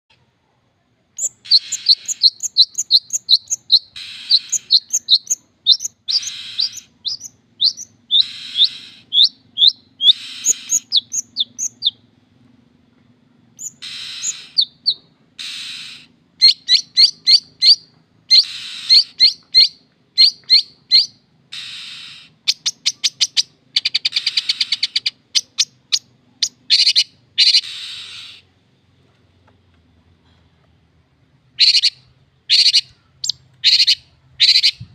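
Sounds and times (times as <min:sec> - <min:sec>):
shrike singing: 0:01.2 - 0:12.1, 0:13.6 - 0:28.6.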